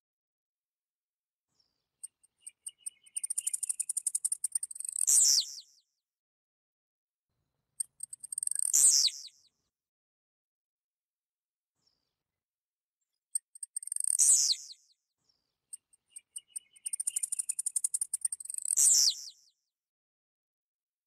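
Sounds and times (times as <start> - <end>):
bird singing ticks and buzzy note: 1.6 - 5.9, 7.8 - 9.5, 13.3 - 19.6.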